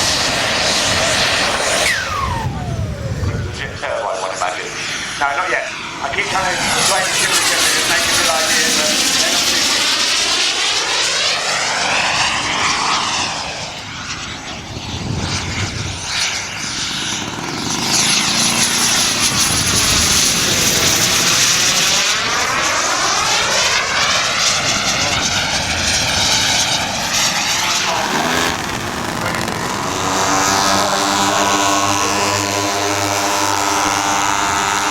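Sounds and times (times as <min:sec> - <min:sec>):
model aircraft engine flying past: 0:00.0 - 0:34.9.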